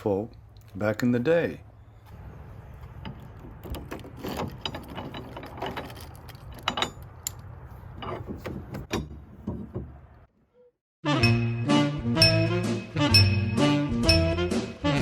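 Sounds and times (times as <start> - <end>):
swing music: 11.0 - 15.0.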